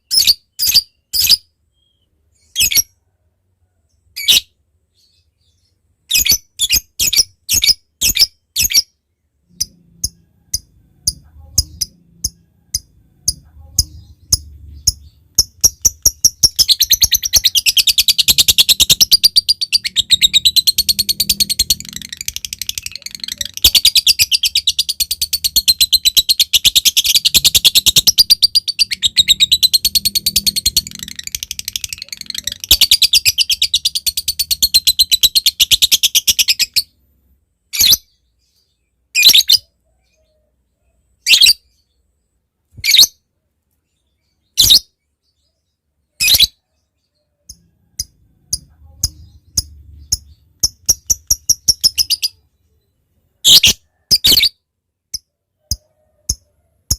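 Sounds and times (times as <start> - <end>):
lovebird chattering trill: 9.5 - 36.9, 47.5 - 52.5
lovebird chipping: 9.5 - 36.9, 47.5 - 52.5.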